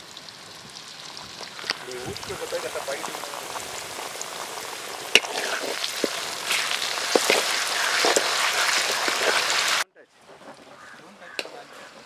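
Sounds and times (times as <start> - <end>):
masala sizzling in hot oil: 0.0 - 9.8
spatula scraping and clicking on pan: 5.1 - 9.8.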